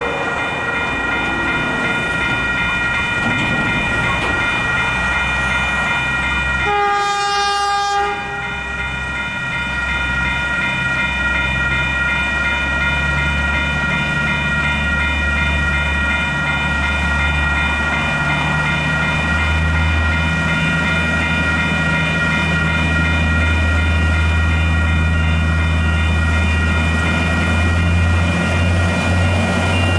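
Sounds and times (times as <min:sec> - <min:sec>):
level crossing bells ringing: 0:00.0 - 0:29.9
locomotive horn: 0:06.6 - 0:08.6.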